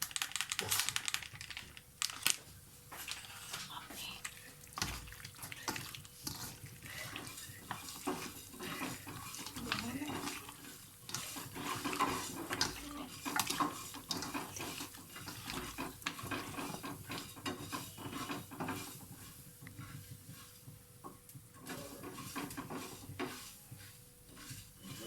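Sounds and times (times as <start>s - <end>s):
utensil scraping against a bowl: 5.6s - 20.7s, 21.6s - 25.0s.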